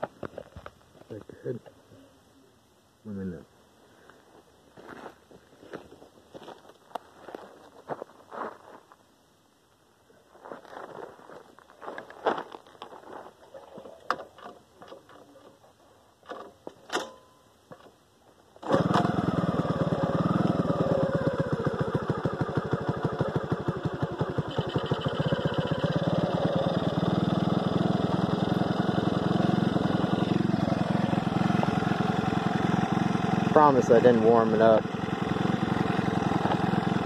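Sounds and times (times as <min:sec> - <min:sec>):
motorcycle engine idling: 0:18.7 - 0:37.0.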